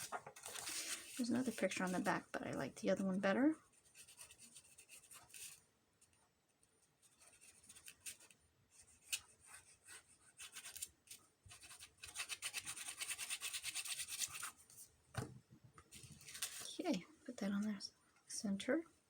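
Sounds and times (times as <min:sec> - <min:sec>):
handling rustles and taps: 0:00.0 - 0:00.7
scratchy rubbing on paper: 0:03.7 - 0:05.6, 0:07.1 - 0:10.9, 0:11.5 - 0:14.6.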